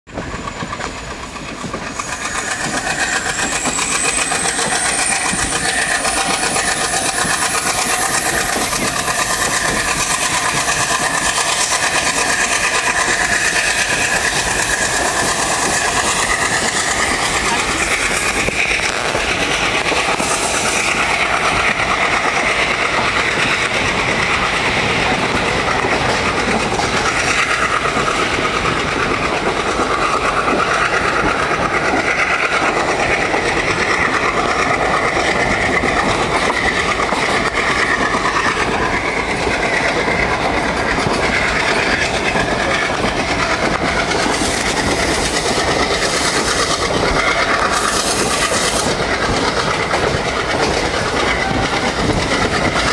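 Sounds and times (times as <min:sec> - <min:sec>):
train wheels on rails: 0:00.1 - 0:52.9
hissy rises: 0:00.6 - 0:29.0.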